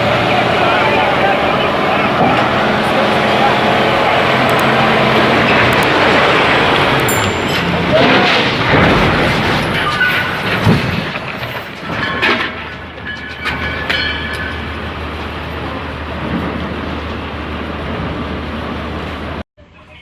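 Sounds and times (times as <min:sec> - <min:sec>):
heavy machinery rumbling: 0:00.0 - 0:20.0
metallic clanks and rattles: 0:07.0 - 0:18.2.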